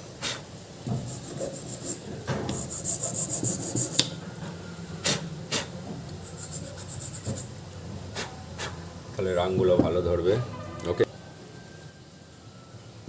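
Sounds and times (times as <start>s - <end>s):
hand tool scraping metal terminal: 1.0s - 4.1s.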